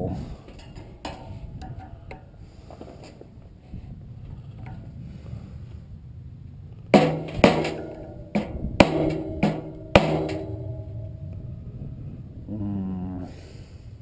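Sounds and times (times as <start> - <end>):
hammer blows on metal: 7.0 - 11.2.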